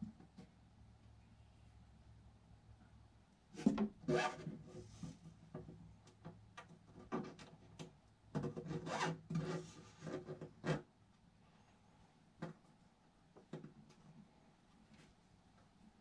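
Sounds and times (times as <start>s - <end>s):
panel scraping against box: 8.5s - 10.8s.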